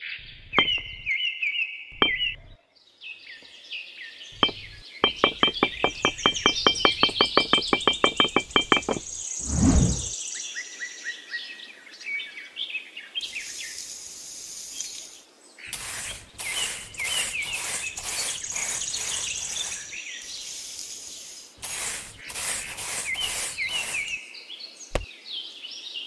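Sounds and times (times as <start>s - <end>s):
rake scratching through sand: 0.0s - 1.1s, 2.0s - 2.6s, 4.4s - 10.1s, 15.7s - 24.2s
birds chirping and trilling: 0.0s - 10.5s, 14.8s - 25.6s
faint insect chorus: 13.2s - 24.5s.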